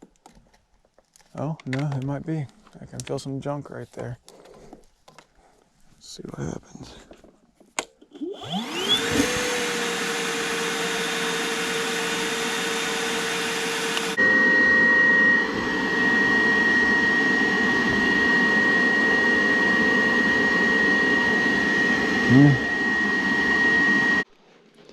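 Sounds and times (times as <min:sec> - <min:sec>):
vacuum motor whine: 0:08.2 - 0:24.3
steady high whistle: 0:14.0 - 0:24.3.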